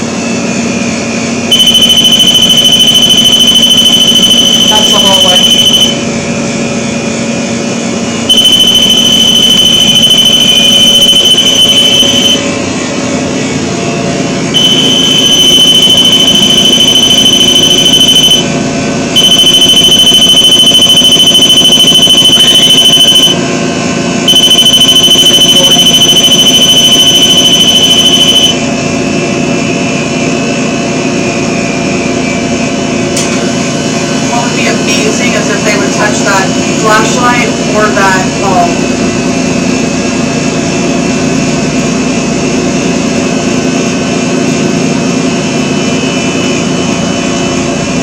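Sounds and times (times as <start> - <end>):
shrill electronic alarm tone: 1.5 - 6.2, 8.2 - 12.6, 14.5 - 28.8.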